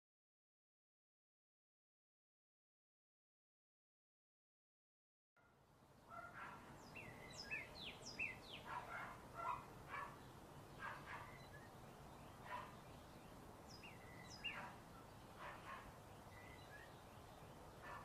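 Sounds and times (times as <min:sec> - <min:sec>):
faint background hiss: 0:05.5 - 0:18.0
birds chirping: 0:06.0 - 0:18.0.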